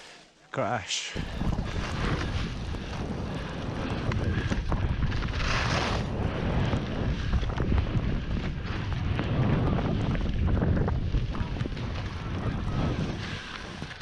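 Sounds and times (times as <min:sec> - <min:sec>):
skis hissing over snow: 0:01.2 - 0:07.4
wind buffeting microphone: 0:01.2 - 0:14.0.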